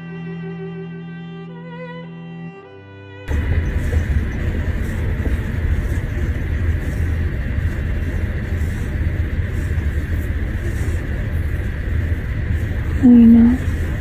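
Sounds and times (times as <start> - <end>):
car rumble inside cabin: 3.3 - 14.0.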